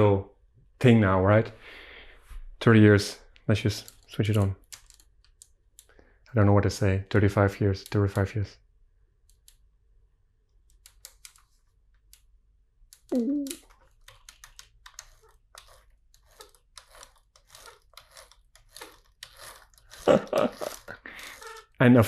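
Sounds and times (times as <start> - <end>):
plastic bricks clicking and rattling: 13.0 - 21.6.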